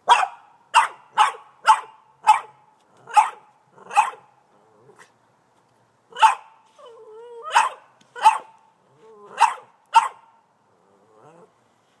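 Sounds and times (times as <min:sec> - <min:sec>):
dog barking: 0:00.1 - 0:04.2, 0:06.2 - 0:06.6, 0:07.5 - 0:08.6, 0:09.4 - 0:10.3.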